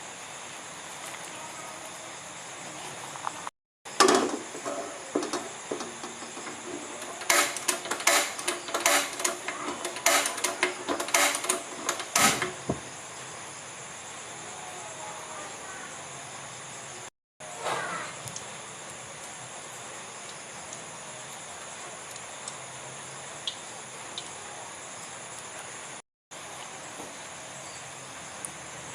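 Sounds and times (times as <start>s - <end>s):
steady background hiss: 0.0s - 28.9s
utensil knock: 4.0s - 12.9s.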